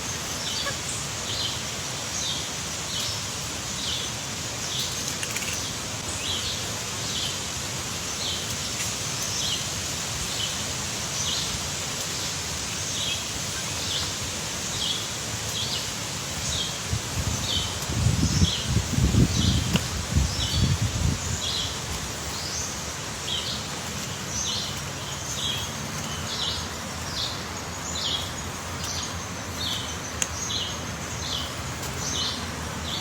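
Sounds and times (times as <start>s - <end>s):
steady outdoor hiss: 0.0s - 33.0s.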